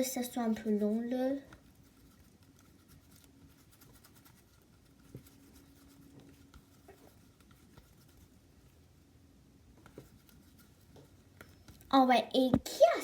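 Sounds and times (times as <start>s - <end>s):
hands rolling dough on table: 0.0s - 8.4s.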